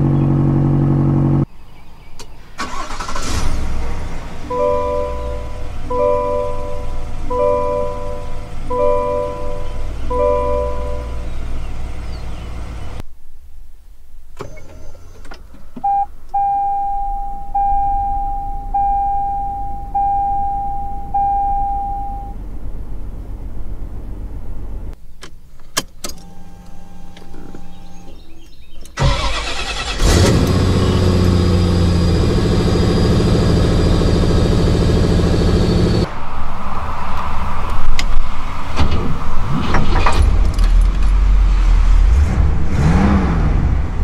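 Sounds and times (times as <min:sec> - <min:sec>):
car engine cranking and idling: 0:00.0 - 0:01.5, 0:02.1 - 0:36.1, 0:37.6 - 0:44.0
car starter clicks: 0:02.2 - 0:03.6, 0:14.4 - 0:16.4, 0:25.2 - 0:31.4
car starting quietly: 0:02.2 - 0:13.0, 0:14.3 - 0:36.1
dashboard chime dinging: 0:04.5 - 0:11.3, 0:15.9 - 0:22.4.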